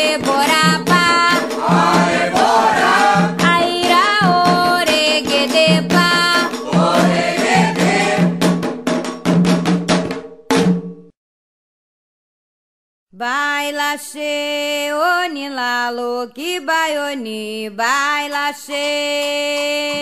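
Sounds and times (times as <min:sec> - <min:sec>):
drums and percussion: 0:00.0 - 0:11.2, 0:18.3 - 0:20.0
group of voices chanting: 0:01.6 - 0:03.4, 0:06.6 - 0:08.4.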